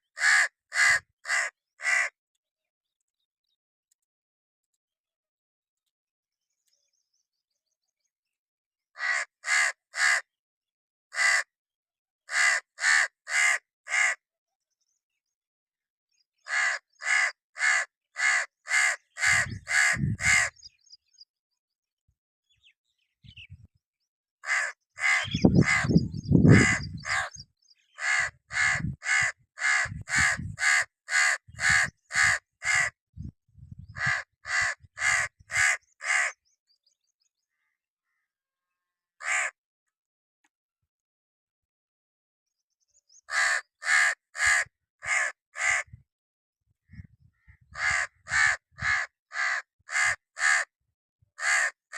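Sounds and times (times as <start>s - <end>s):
crow cawing: 0.1s - 2.1s, 9.0s - 10.3s, 11.1s - 11.5s, 12.3s - 14.2s, 16.5s - 20.6s, 24.4s - 33.0s, 34.0s - 36.4s, 39.2s - 39.6s, 43.3s - 45.9s, 47.3s - 50.7s, 51.4s - 51.8s.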